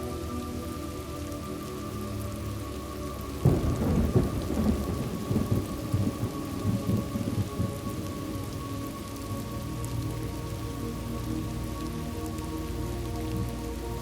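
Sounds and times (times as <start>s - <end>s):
steady rain: 0.0s - 14.0s
thunderclap and deep rumbling: 3.4s - 8.2s.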